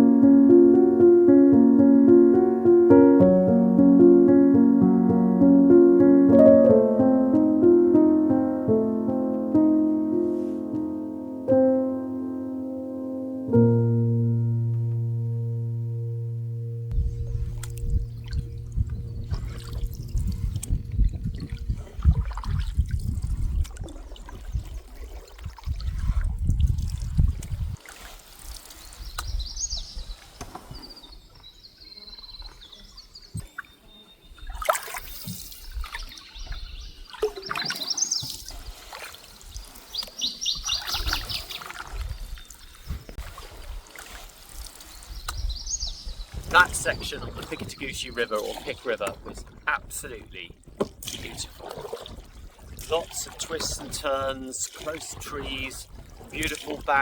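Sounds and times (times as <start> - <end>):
canoe paddle strokes: 1.6 - 11.4, 16.9 - 31.3, 34.4 - 57.0
low rumble: 13.6 - 21.8
birds chirping and trilling: 16.9 - 21.5, 28.8 - 34.6, 35.6 - 43.2, 44.8 - 49.1
water trickling and splashing: 17.0 - 57.0.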